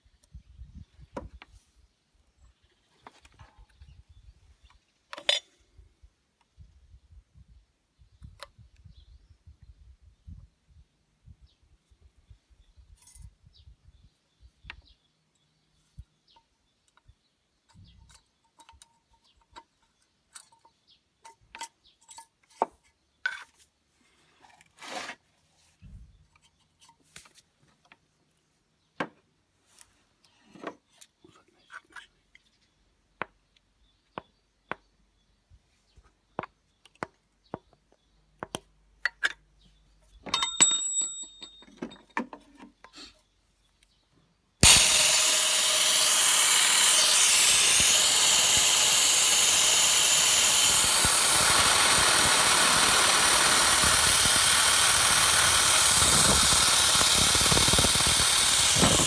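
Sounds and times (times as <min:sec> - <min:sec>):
metal tools clinking: 0:40.3 - 0:42.2.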